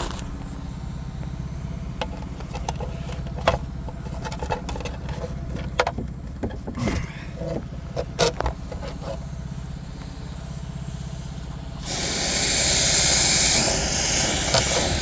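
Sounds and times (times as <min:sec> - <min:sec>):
engine pulsing rumble: 0:00.0 - 0:15.0
knocks and clicks: 0:02.0 - 0:09.0.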